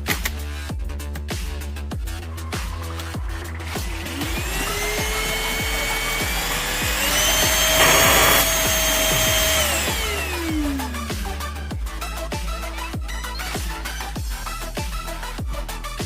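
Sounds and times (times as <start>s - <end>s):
electronic music with a beat: 0.0s - 16.0s
vacuum motor whine: 4.0s - 11.6s.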